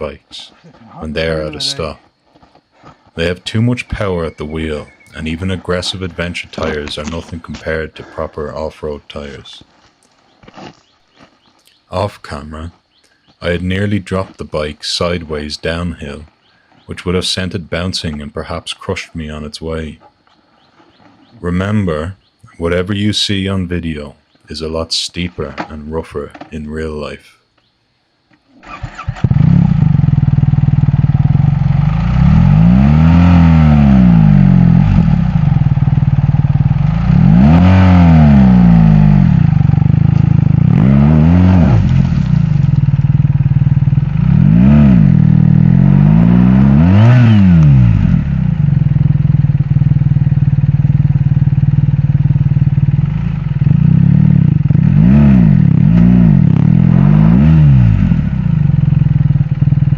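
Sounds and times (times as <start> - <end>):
motorcycle engine revving in spurts: 28.6 - 59.9.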